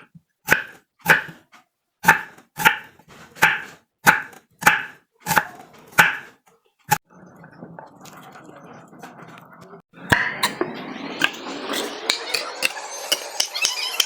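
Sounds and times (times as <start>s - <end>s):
knife chopping on cutting board: 0.0s - 1.4s, 2.0s - 6.3s, 10.1s - 14.0s.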